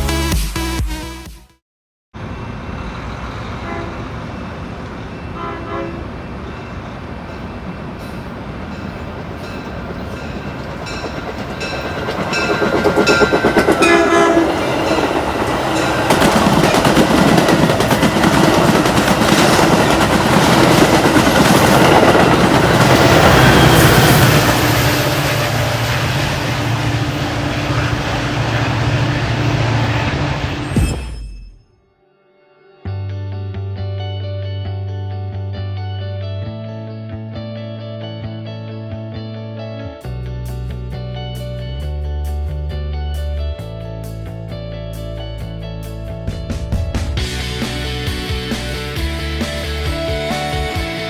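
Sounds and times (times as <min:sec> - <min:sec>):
train passing on rails: 0:02.2 - 0:31.4, 0:45.0 - 0:51.0
train horn blasts: 0:03.4 - 0:04.4, 0:05.1 - 0:06.6, 0:12.3 - 0:30.7.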